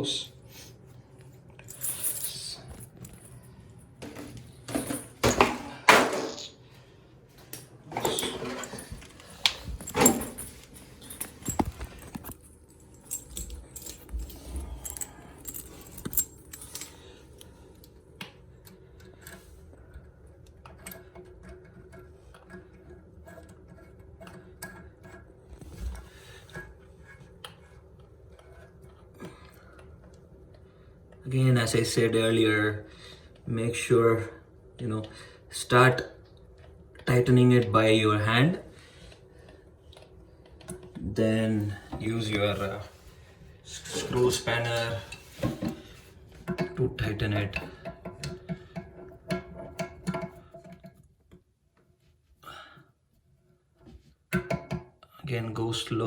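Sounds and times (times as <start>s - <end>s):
metal hose fittings jangling: 1.6s - 6.6s, 7.9s - 17.4s.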